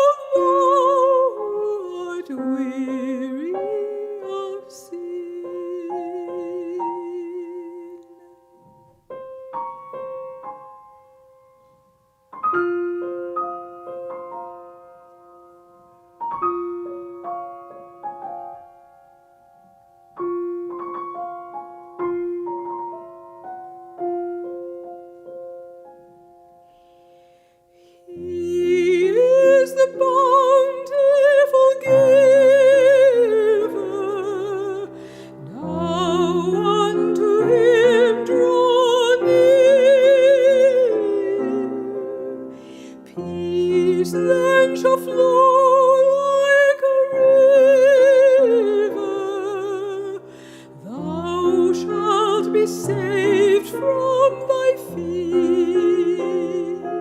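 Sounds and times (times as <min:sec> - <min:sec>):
soprano singing with vibrato: 0:00.0 - 0:08.6, 0:28.0 - 0:57.0
solo piano chords: 0:00.0 - 0:57.0.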